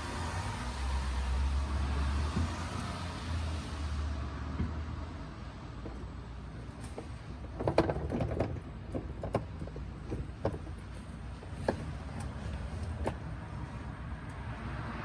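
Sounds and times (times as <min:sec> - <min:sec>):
sharp clicks and knocks: 0:05.8 - 0:13.3.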